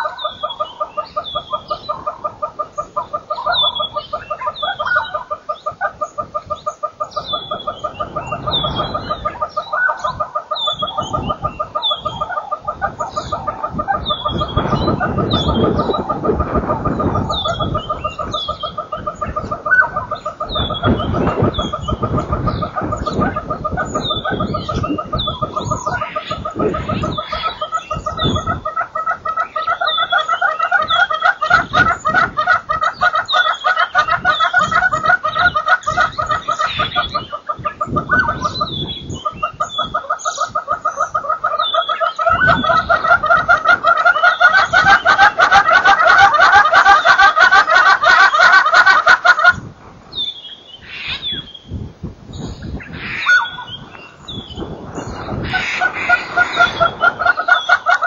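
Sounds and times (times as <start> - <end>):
birds cackling calls: 0.0 - 58.0
high falling bird chirps: 50.1 - 58.0.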